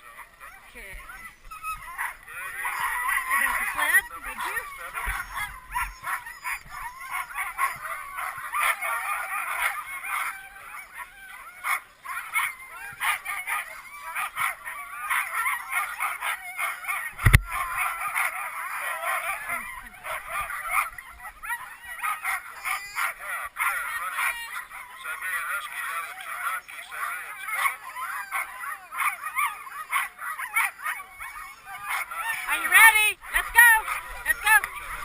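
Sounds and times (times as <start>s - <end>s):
sled dogs yelping and howling: 0.0s - 35.0s
sharp knock: 17.2s - 17.5s.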